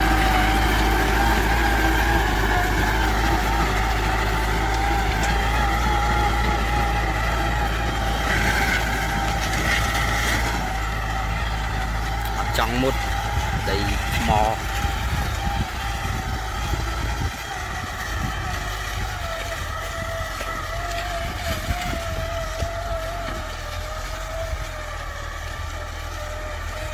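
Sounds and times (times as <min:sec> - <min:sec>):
tractor engine running: 0:00.0 - 0:26.9.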